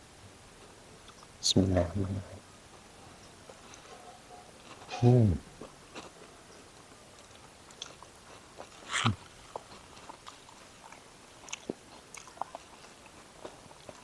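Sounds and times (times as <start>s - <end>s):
person chewing and lip smacking: 7.2s - 14.0s.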